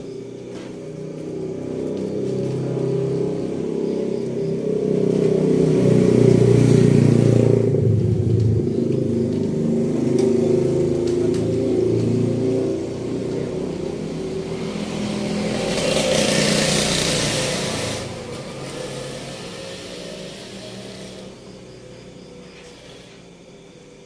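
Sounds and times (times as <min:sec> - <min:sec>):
truck engine revving: 0:01.1 - 0:21.9
loud air hiss: 0:16.3 - 0:21.4.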